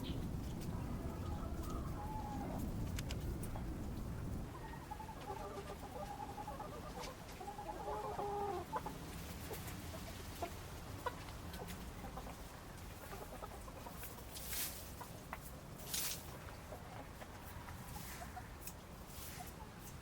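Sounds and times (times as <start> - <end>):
sharp clicks: 2.8 - 3.3
chicken clucking: 4.5 - 15.5, 16.3 - 20.0.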